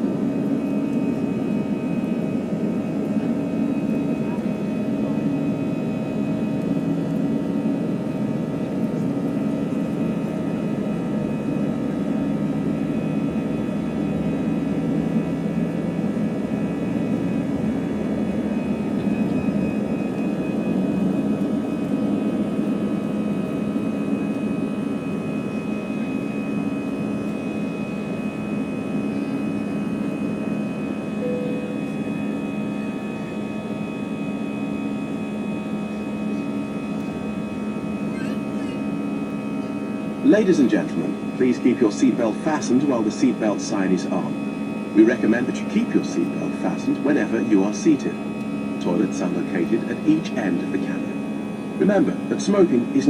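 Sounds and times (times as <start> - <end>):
jet engines roaring in cabin: 0.0 - 53.0.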